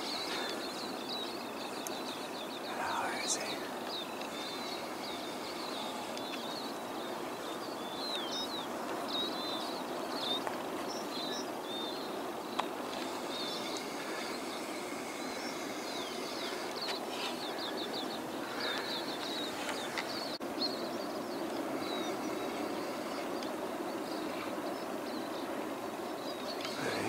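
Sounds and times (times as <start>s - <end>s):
steady rushing background: 0.0s - 20.4s
small birds chirping: 0.0s - 27.0s.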